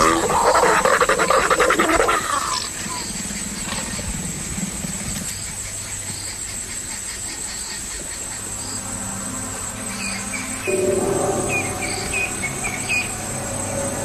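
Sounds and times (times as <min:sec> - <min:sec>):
cricket trill: 0:00.0 - 0:14.0
low hum: 0:08.2 - 0:14.0
faint low tones: 0:08.9 - 0:14.0.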